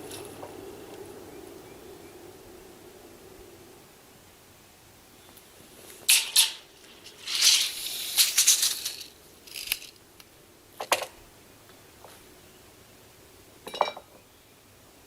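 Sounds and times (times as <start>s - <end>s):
rattling and clattering: 6.1s - 9.9s.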